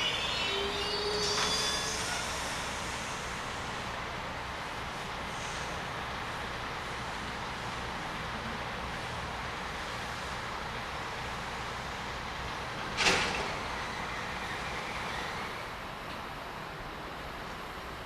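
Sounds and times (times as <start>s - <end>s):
faint high squeal: 0.0s - 3.4s
train running noise: 0.0s - 18.0s.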